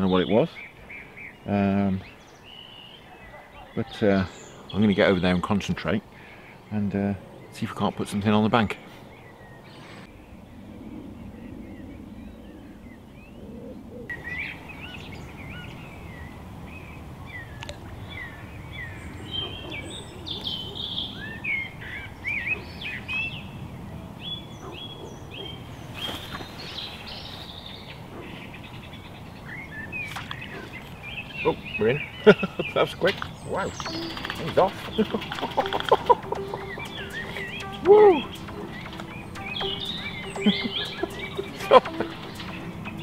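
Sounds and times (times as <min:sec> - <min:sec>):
low outdoor background noise: 0:00.0 - 0:43.0
songbirds chirping: 0:00.0 - 0:43.0.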